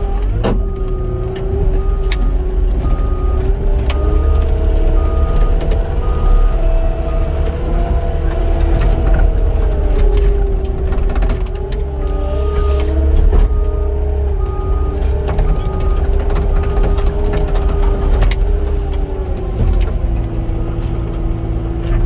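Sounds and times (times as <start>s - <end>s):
heavy diesel engine under load: 0.0s - 22.0s
backup alarm beeping: 0.6s - 9.4s, 11.9s - 18.1s.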